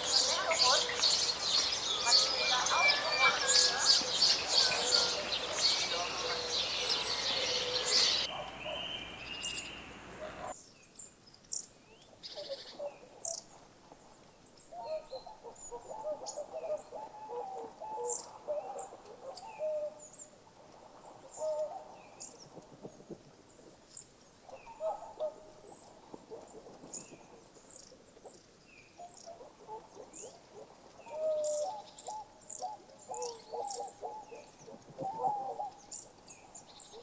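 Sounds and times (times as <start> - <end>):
birds chirping: 0.0 - 10.6.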